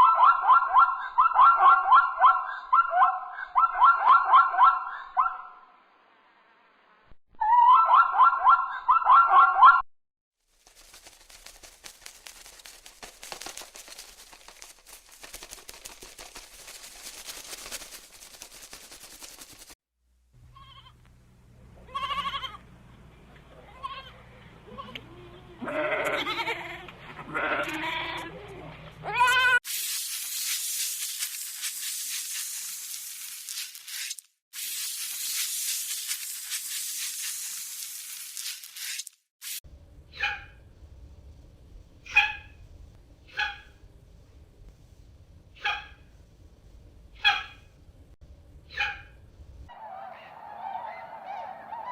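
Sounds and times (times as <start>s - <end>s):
farm animals bleating: 20.5s - 21.0s, 21.8s - 22.6s, 23.6s - 29.6s.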